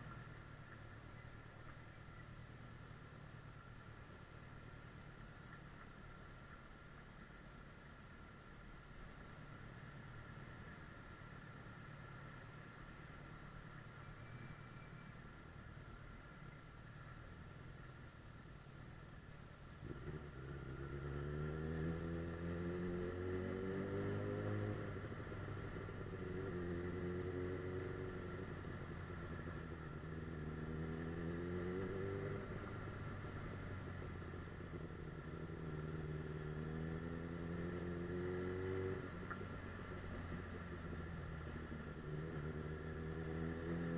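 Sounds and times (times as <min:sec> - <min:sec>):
motorcycle engine accelerating: 0:19.8 - 0:43.9.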